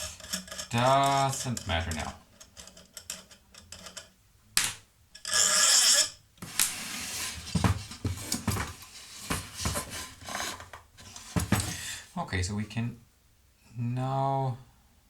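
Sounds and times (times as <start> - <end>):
metal scraping rasp: 0.0 - 4.1, 5.2 - 12.0
metal parts clinking: 0.0 - 4.2.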